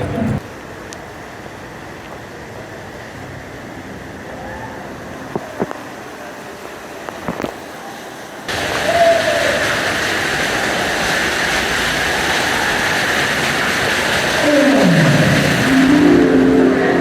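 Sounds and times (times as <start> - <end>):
outdoor background wash: 0.0 - 17.0
loud rushing noise: 8.5 - 17.0.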